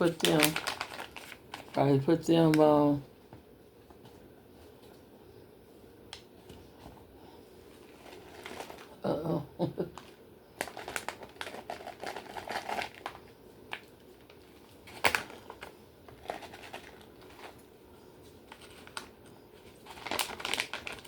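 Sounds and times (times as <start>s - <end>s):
plastic packaging crinkling: 0.0s - 3.0s, 7.8s - 9.0s, 9.8s - 17.7s, 18.3s - 21.0s.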